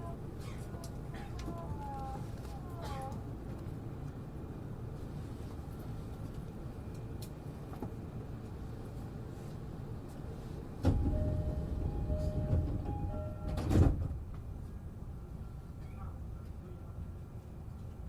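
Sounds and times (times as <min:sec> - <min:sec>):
train hum: 0:00.0 - 0:18.0
chime tones: 0:11.1 - 0:13.6.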